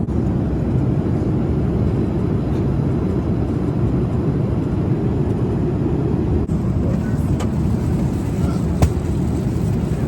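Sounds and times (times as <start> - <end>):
jet cabin rumble: 0.0 - 10.0.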